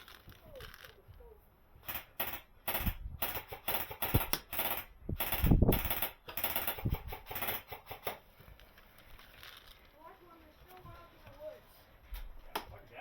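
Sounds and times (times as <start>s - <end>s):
airsoft gunfire rattle: 1.8s - 8.3s.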